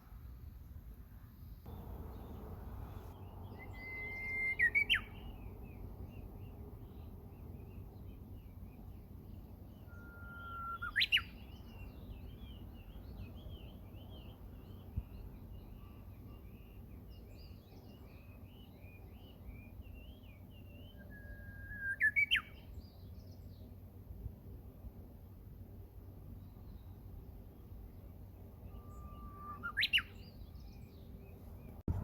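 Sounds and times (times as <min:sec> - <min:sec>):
songbirds twittering: 0:01.4 - 0:21.3, 0:26.3 - 0:32.0
whistled bird song: 0:01.4 - 0:23.7, 0:26.3 - 0:32.0.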